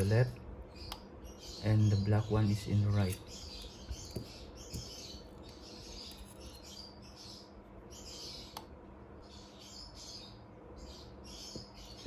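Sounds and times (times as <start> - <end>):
birds chirping: 0.0 - 12.0
low steady hum: 0.0 - 12.0
light click: 8.5 - 8.7.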